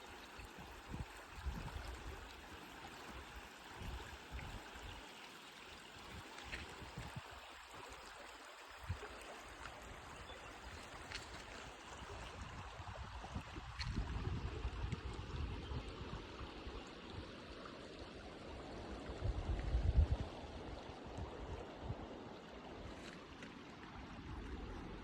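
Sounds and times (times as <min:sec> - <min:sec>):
creek water flowing: 0:00.0 - 0:25.0.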